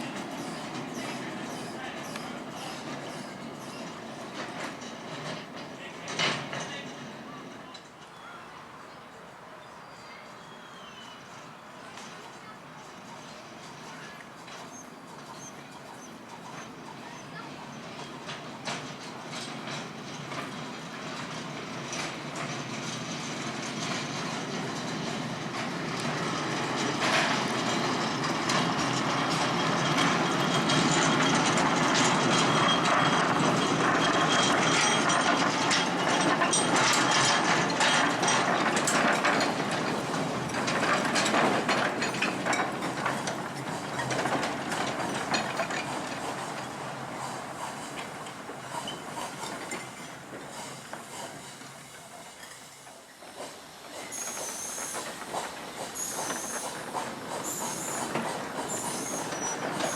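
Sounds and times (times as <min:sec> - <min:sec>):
miniature train wheels rattling: 0:21.8 - 0:51.0, 0:54.0 - 0:59.9.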